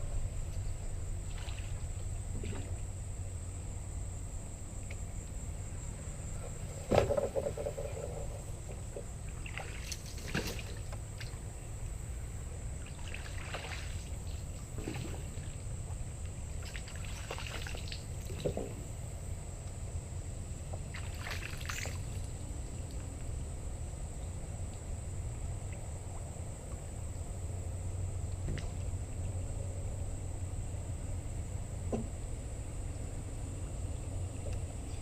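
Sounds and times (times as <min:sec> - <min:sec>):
water splashing and trickling: 0:01.0 - 0:03.0, 0:06.6 - 0:19.1, 0:20.7 - 0:23.1.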